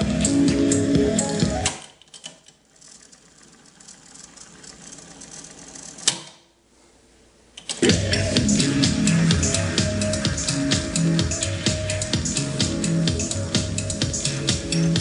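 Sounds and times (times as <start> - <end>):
background music: 0.0 - 1.7, 7.8 - 15.0
tape transport whir: 0.0 - 6.3, 7.6 - 15.0.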